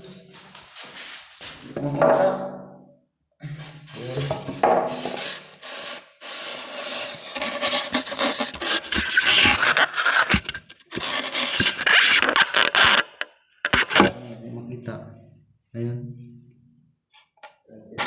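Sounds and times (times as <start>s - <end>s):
scraping on rough surface: 6.8s - 14.2s.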